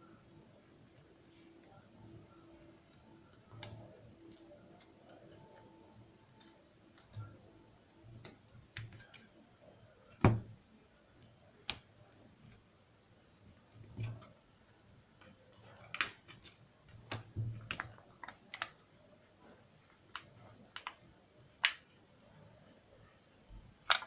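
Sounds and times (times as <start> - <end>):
small clicks and taps of tools: 2.9 - 7.4.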